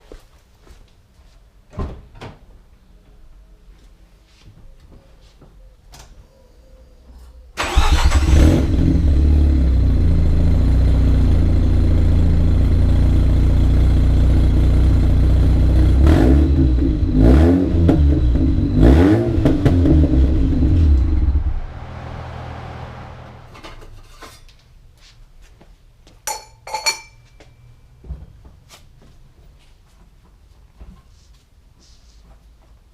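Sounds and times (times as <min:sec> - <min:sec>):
rotary engine starting and idling: 0:07.6 - 0:10.1
engine revving in blips: 0:07.6 - 0:10.5, 0:15.6 - 0:23.5.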